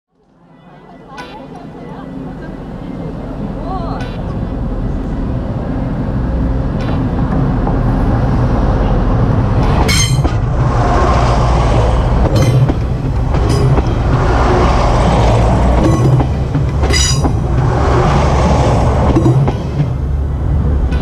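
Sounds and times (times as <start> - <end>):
train rumbling on rails: 0.2 - 21.0
train wheel clicks: 9.6 - 21.0.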